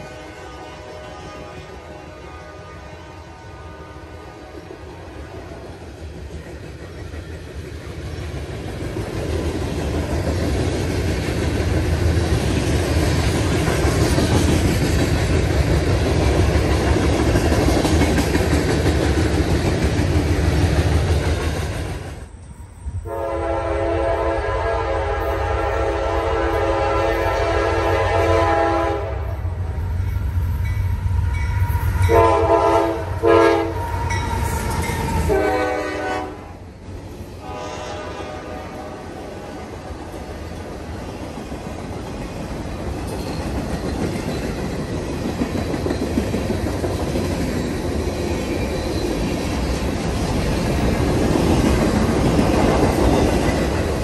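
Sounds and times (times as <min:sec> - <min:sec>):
locomotive air horn: 0:00.0 - 0:04.7, 0:23.0 - 0:29.5, 0:31.8 - 0:36.6, 0:37.4 - 0:39.7
freight train wheels rumbling: 0:00.0 - 0:54.0.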